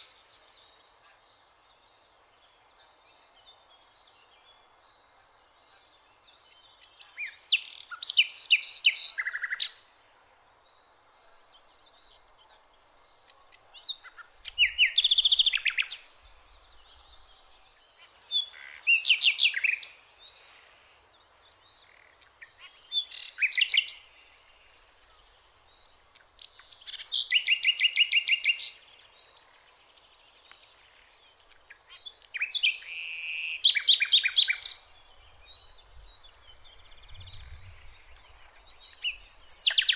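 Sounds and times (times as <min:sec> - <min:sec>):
songbird trilling: 0:18.0 - 0:21.0.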